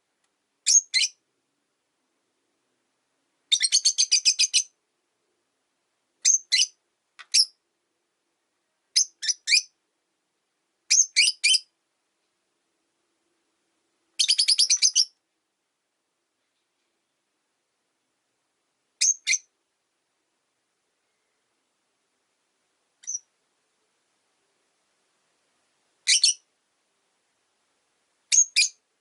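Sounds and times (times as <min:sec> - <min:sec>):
lovebirds chirping: 0:00.6 - 0:01.2, 0:03.5 - 0:04.8, 0:06.2 - 0:07.6, 0:08.9 - 0:09.8, 0:10.9 - 0:11.7, 0:14.2 - 0:15.2, 0:19.0 - 0:19.5, 0:23.0 - 0:23.3, 0:26.0 - 0:26.5, 0:28.3 - 0:28.8.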